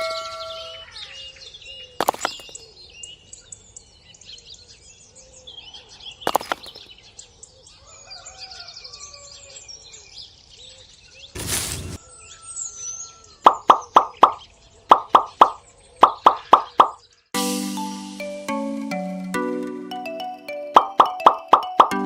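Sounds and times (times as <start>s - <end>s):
birds chirping: 0.0s - 17.3s, 18.2s - 22.0s
sharp knocks: 13.5s - 17.0s.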